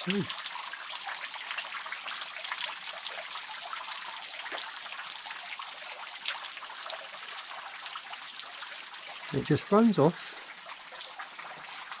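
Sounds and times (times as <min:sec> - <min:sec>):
water dripping: 0:00.0 - 0:12.0
water trickling: 0:00.0 - 0:12.0.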